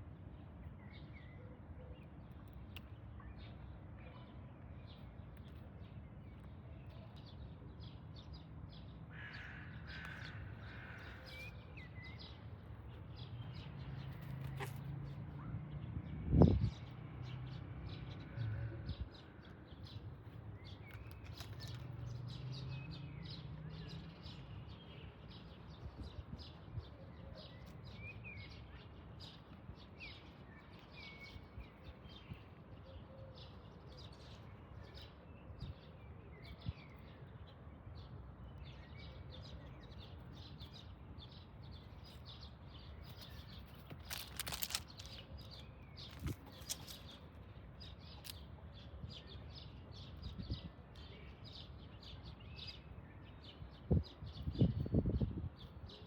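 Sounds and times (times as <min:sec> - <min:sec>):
small birds chirping: 0:02.0 - 0:56.0
brief rustling noise: 0:43.1 - 0:47.2.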